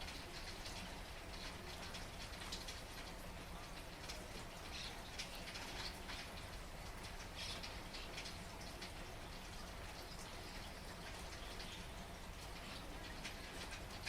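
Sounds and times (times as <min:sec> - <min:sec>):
faint rain falling: 0:00.0 - 0:14.0.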